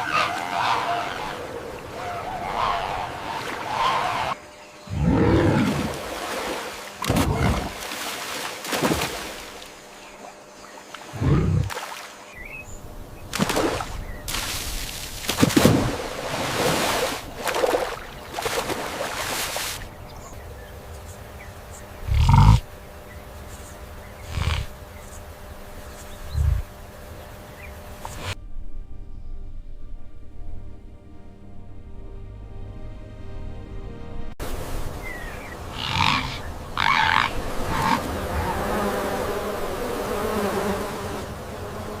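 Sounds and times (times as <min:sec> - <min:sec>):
insects buzzing: 0:00.0 - 0:28.5, 0:34.4 - 0:42.0
deep animal grunts: 0:11.1 - 0:11.7, 0:22.0 - 0:22.7, 0:24.2 - 0:24.8
animal rasping breathy calls: 0:24.2 - 0:24.8.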